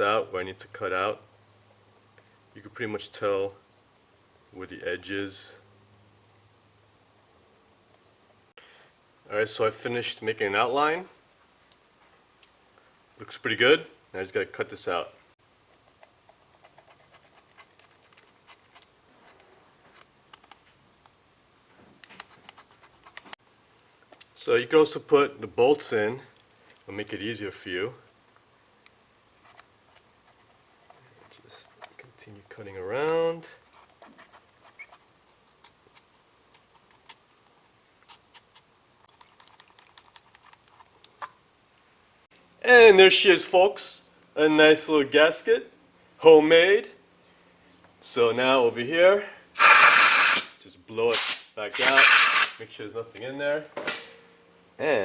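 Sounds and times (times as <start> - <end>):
shears snipping: 51.1 - 52.6.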